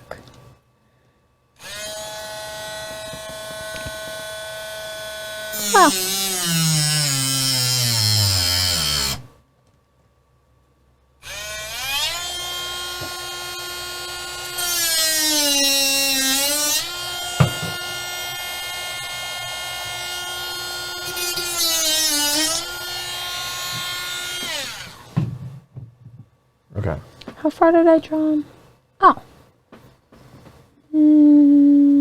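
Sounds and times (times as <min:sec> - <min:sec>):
small electric motor running: 0:01.6 - 0:09.3, 0:11.2 - 0:25.2.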